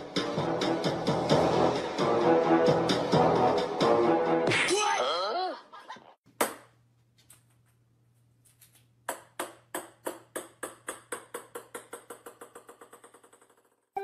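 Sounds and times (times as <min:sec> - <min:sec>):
small ball bouncing on hard floor: 0:09.0 - 0:13.9.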